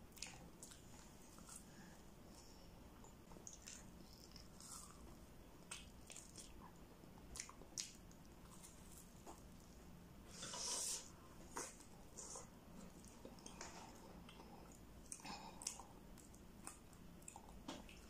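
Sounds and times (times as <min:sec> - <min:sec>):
person chewing with mouth smacks: 0:03.0 - 0:09.4, 0:11.6 - 0:18.0.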